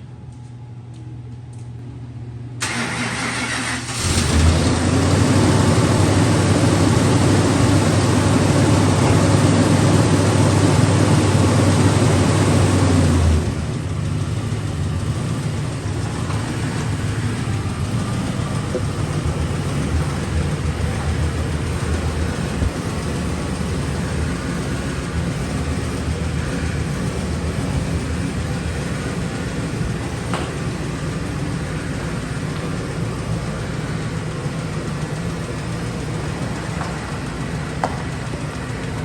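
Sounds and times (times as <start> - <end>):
engine cranking and starting: 2.6 - 6.1
engine idling: 2.6 - 39.0.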